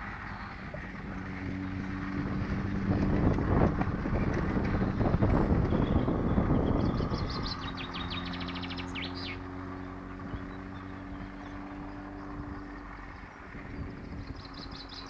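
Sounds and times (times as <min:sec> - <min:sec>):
steady low hum: 0:00.0 - 0:15.0
songbird high trill: 0:05.7 - 0:09.4.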